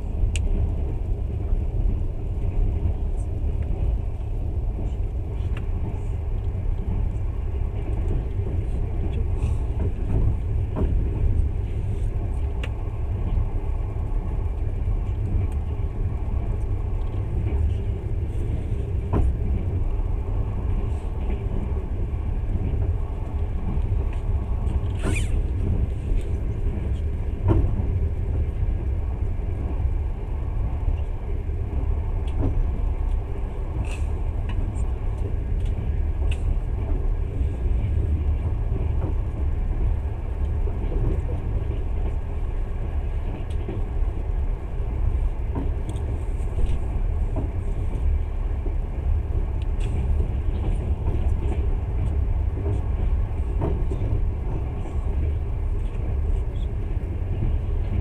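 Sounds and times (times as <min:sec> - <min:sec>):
train running rumble: 0:00.0 - 0:58.0.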